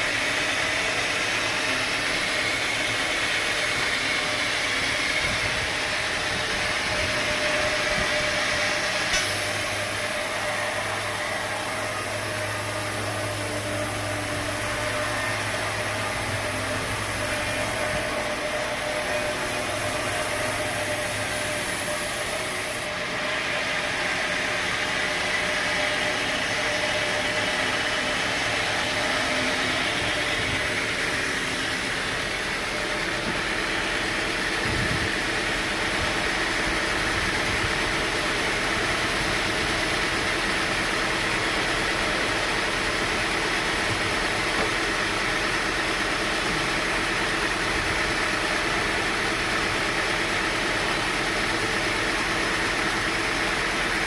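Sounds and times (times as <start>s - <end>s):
sawmill machinery drone: 0.0s - 54.0s
high hiss: 8.8s - 22.9s.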